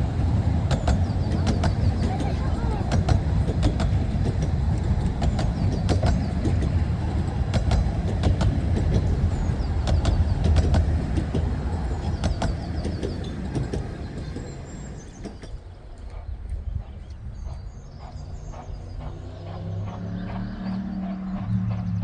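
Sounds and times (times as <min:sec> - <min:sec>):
birds singing: 0:00.0 - 0:22.0
miniature train rumbling past: 0:00.0 - 0:22.0
wheel clicks over rail joints: 0:00.2 - 0:15.8.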